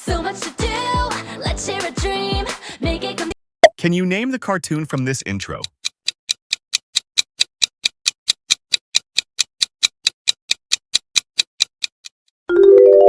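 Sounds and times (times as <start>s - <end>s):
countdown timer ticking: 4.7s - 10.4s.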